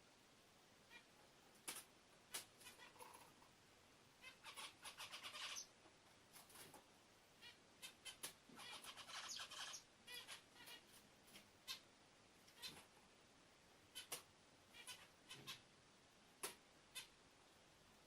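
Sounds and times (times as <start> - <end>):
bird chirping: 2.6 - 3.4, 4.2 - 5.8, 7.4 - 11.0, 13.9 - 15.7.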